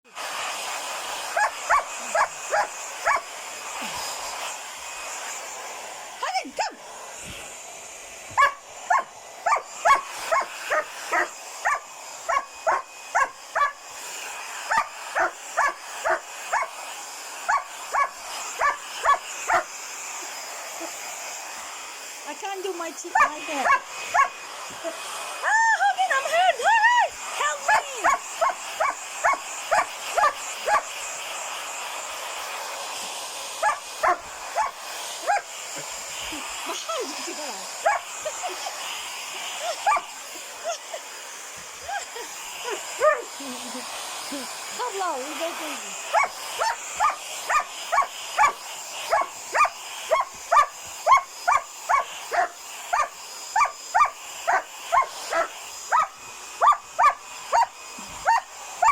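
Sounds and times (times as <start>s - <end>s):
hair dryer blowing: 0.0s - 58.9s
puppy barking: 1.3s - 3.3s, 8.4s - 13.8s, 14.7s - 16.8s, 17.5s - 19.7s, 23.2s - 24.4s, 27.7s - 30.9s, 33.6s - 35.5s, 37.8s - 38.1s, 39.8s - 40.1s, 43.0s - 43.3s, 46.1s - 58.9s.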